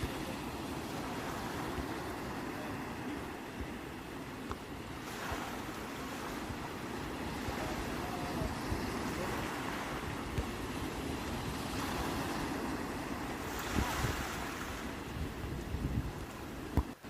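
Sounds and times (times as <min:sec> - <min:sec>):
sea waves washing in: 0:00.0 - 0:17.0
wind buffeting microphone: 0:04.7 - 0:16.9.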